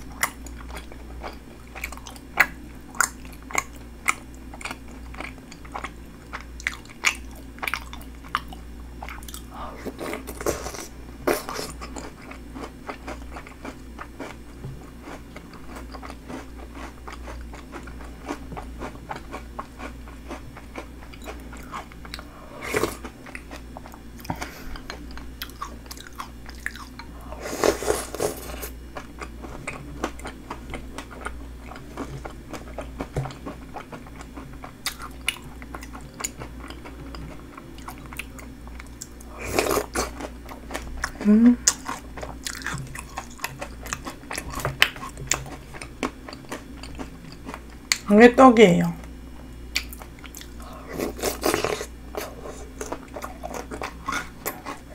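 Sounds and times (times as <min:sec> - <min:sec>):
chewing and crunching food: 0:00.0 - 0:48.1, 0:49.0 - 0:54.9
steady low hum: 0:00.0 - 0:54.9.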